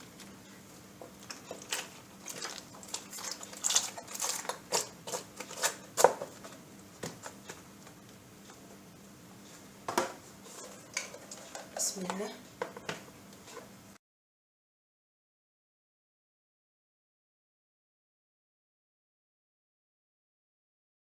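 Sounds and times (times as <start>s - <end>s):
packaging rustling: 1.2s - 6.4s.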